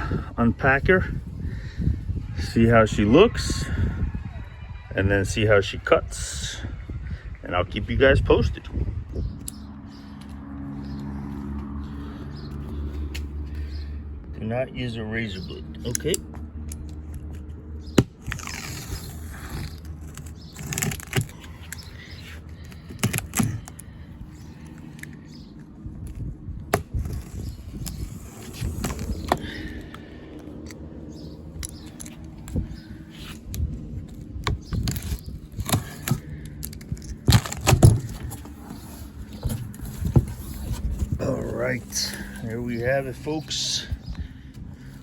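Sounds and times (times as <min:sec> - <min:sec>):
cardboard box scraping and crackling: 0:17.2 - 0:23.9, 0:26.1 - 0:29.9, 0:31.1 - 0:44.1
packed parts knocking: 0:34.5 - 0:38.6.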